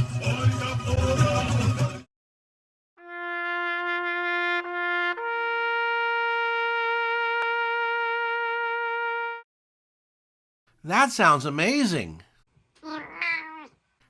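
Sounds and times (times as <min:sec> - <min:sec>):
brass-like horn tone: 0:03.0 - 0:09.4.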